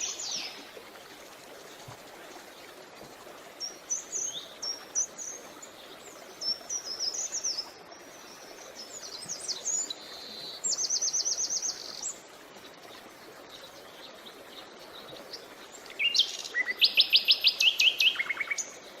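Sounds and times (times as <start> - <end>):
songbirds singing trills: 0.0 - 0.6, 13.4 - 19.0
flowing creek water: 0.0 - 19.0.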